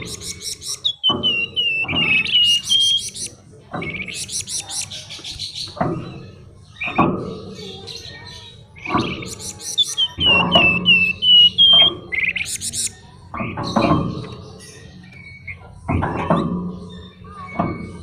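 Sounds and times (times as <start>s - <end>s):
songbird singing trills and whistles: 0.0s - 18.0s.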